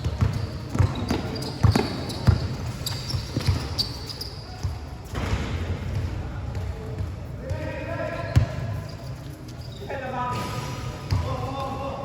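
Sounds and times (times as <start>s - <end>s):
ball bouncing on hard court: 0.0s - 7.6s, 8.2s - 8.8s, 10.3s - 11.5s
short high squeaks: 0.8s - 4.6s.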